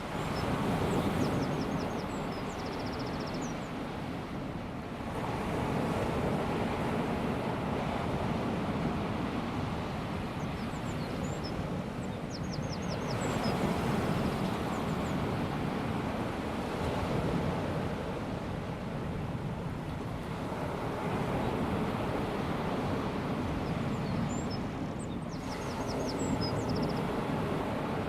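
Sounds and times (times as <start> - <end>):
small waves washing onto beach: 0.0 - 12.3, 13.0 - 28.0.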